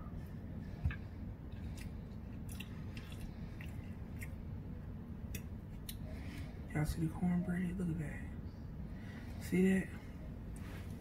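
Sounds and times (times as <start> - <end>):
person chewing: 0.8 - 4.6, 5.2 - 6.0.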